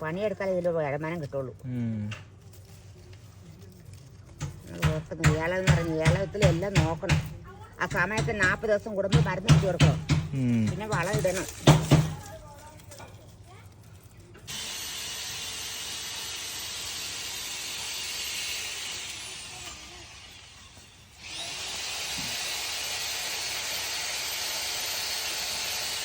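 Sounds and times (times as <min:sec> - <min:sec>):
crop sprayer hissing: 0:04.4 - 0:12.4, 0:14.4 - 0:26.0.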